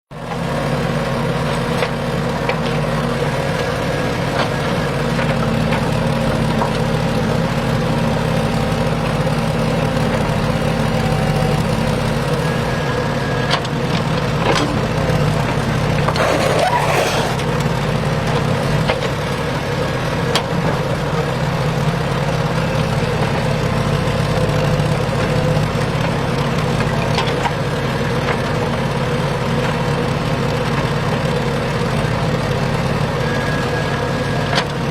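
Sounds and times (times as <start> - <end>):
motor humming: 14.6 - 17.8.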